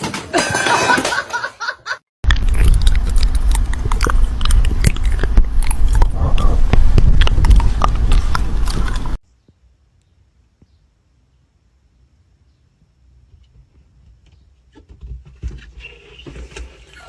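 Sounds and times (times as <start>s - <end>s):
chewing and crunching: 2.2s - 9.2s
steady low rumble: 2.3s - 9.2s
voice-like sound: 5.9s - 6.8s.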